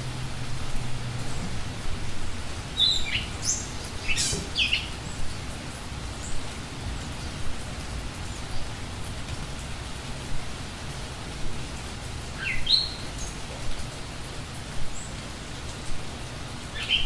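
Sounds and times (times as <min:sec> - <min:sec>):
small birds chirping: 0:02.2 - 0:09.0, 0:10.5 - 0:17.0.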